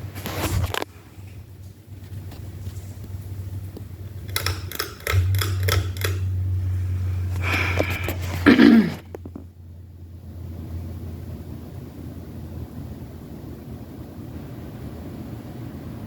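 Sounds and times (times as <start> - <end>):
ceiling fan motor humming: 0.0 - 16.0
rapid clicks: 4.2 - 6.3.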